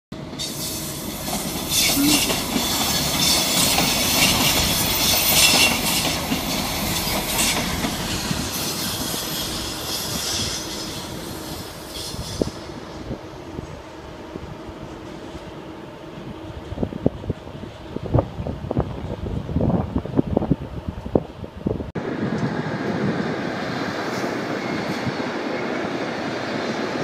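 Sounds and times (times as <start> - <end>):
high hiss from rails: 0.3 - 13.2
train wheels clattering: 0.4 - 12.5.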